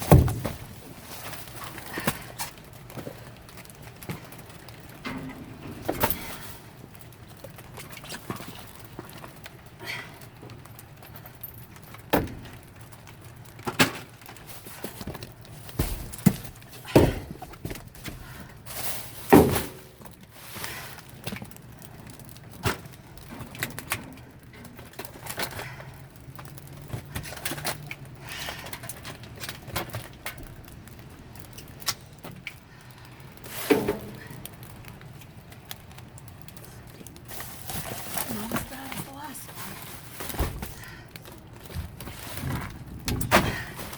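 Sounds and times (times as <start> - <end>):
boxes knocking and rustling: 0.0 - 9.6, 11.0 - 32.7, 33.3 - 35.0, 37.0 - 43.9
scraping clatter: 37.2 - 43.9.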